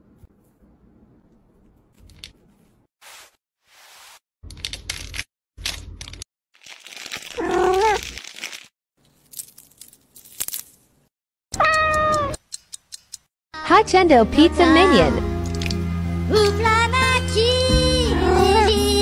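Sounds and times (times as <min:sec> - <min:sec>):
food packaging crinkling and crunching: 0:06.6 - 0:11.0.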